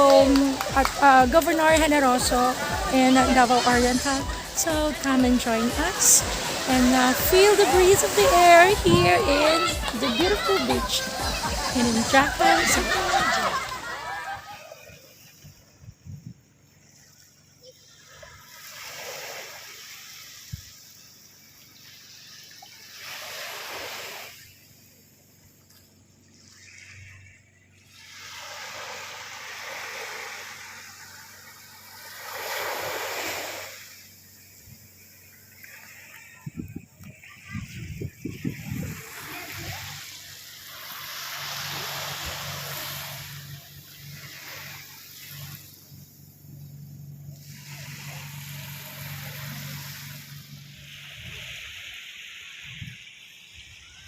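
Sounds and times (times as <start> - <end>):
sea waves washing onto beach: 0.0 - 15.7, 17.9 - 24.9, 27.8 - 54.0
steady low hum: 36.5 - 51.9.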